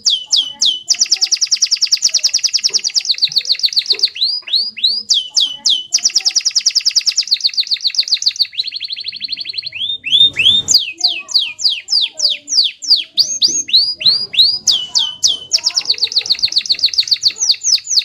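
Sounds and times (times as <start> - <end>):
canary singing: 0.0 - 18.0.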